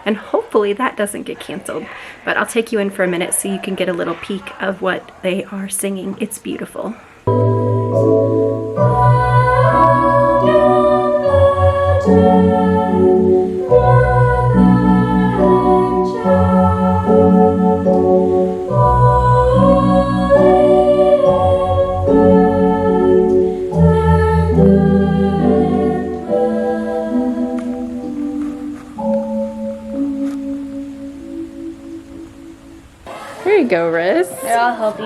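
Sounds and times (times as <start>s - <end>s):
organ chords: 7.3s - 33.1s
girls singing: 8.8s - 30.8s.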